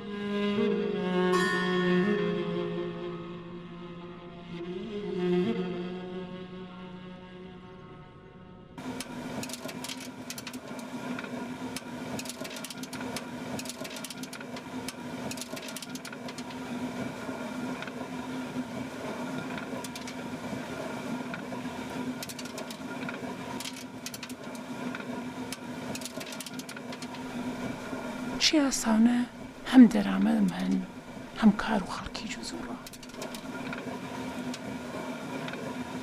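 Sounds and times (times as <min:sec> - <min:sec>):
rapid irregular clicks: 0:08.9 - 0:16.6, 0:19.3 - 0:20.2, 0:21.3 - 0:28.0, 0:32.8 - 0:35.8.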